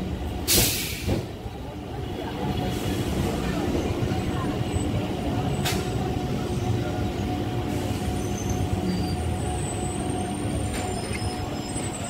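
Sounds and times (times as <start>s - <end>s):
train rumbling: 0.0s - 12.0s
brief hiss: 0.5s - 1.2s.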